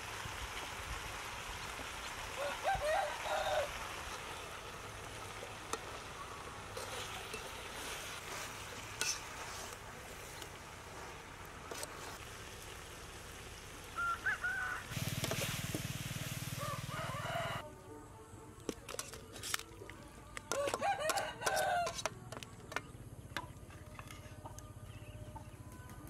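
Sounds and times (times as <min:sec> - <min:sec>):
food sizzling in a wok: 0:00.0 - 0:17.6
chicken calling: 0:13.9 - 0:14.9.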